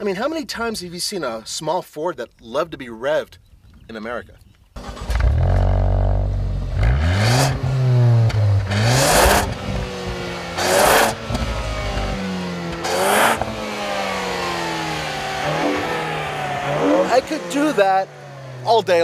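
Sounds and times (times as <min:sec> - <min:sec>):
car engine revving hard: 0:04.8 - 0:18.7.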